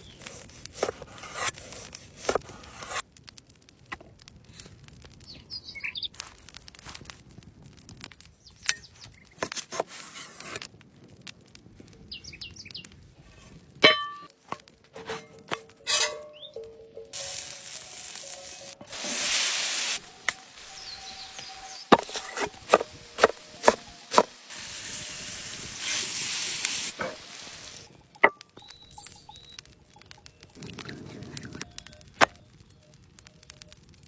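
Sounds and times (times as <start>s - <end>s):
bird chirping: 20.7s - 22.6s, 28.6s - 30.6s.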